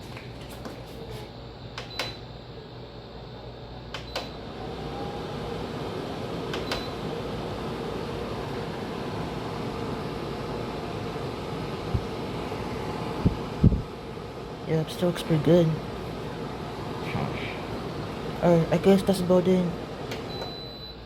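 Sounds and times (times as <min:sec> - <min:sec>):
fan blowing steadily: 0:00.0 - 0:21.0.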